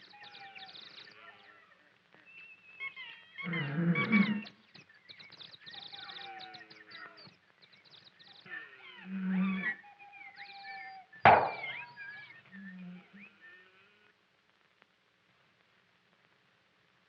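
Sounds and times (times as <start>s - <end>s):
wild animal cries: 8.5s - 14.0s
sudden loud bang: 11.3s - 11.8s.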